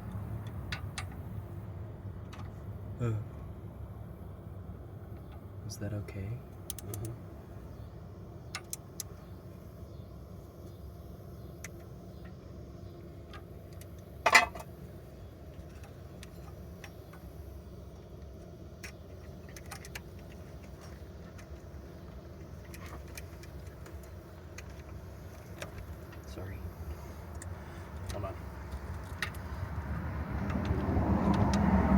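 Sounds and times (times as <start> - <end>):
small metallic clicks: 6.6 - 7.2, 8.5 - 9.2, 18.3 - 26.3, 27.3 - 29.7
steady low rumble: 17.1 - 31.9.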